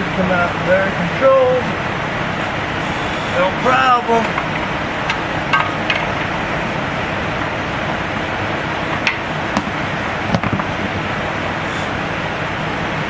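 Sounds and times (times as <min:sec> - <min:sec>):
steady rushing noise: 0:03.4 - 0:13.0
tools and metal parts knocking: 0:04.2 - 0:06.4, 0:08.9 - 0:10.7.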